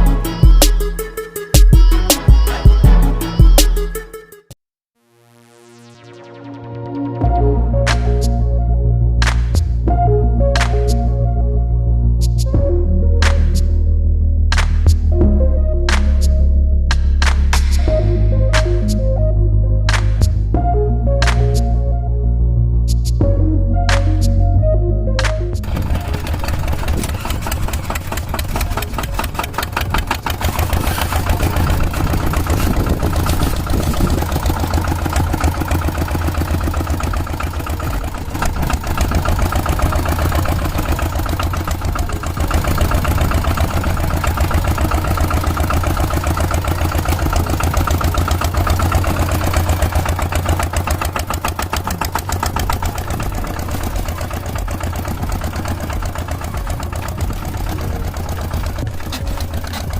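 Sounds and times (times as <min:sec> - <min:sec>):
small engine chugging: 0:25.6 - 0:59.9.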